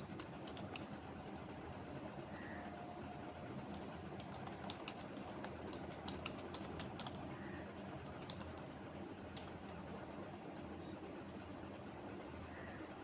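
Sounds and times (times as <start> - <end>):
computer keyboard typing: 0.0 - 1.0, 3.7 - 7.3, 8.0 - 9.8
low background hum: 0.0 - 13.0.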